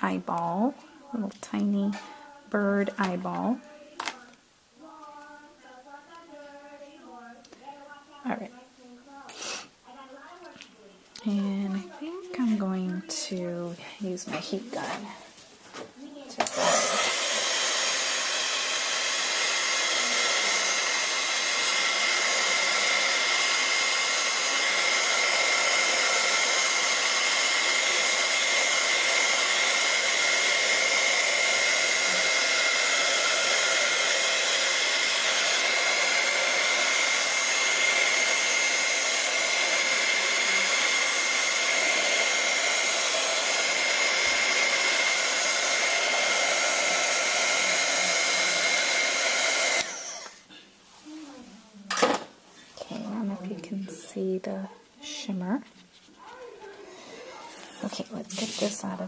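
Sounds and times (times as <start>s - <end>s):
heat gun whining: 16.4s - 50.5s.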